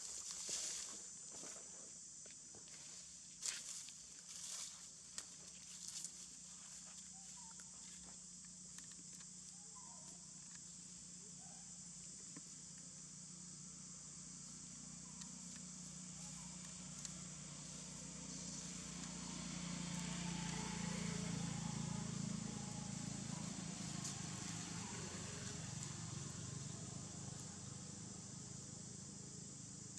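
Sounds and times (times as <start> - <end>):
high-pitched insect drone: 0.0 - 29.9
faint chirps: 5.8 - 8.2, 8.8 - 29.9.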